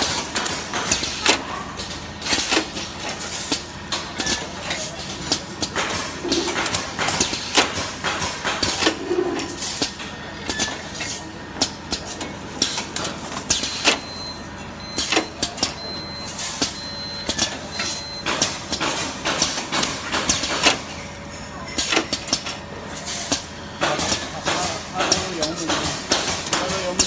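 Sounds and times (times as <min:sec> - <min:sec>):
mechanism clacking and knocking: 0:00.0 - 0:14.1, 0:18.2 - 0:21.0, 0:21.7 - 0:22.6, 0:23.3 - 0:27.0
machine motor hum: 0:00.0 - 0:15.2.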